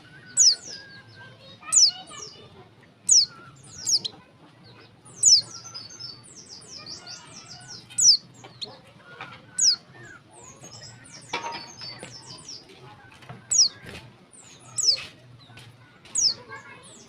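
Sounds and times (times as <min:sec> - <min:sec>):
bird calling with sharp high notes: 0:00.0 - 0:02.4, 0:03.0 - 0:04.2, 0:05.1 - 0:08.7
bird high chirps: 0:00.0 - 0:17.0.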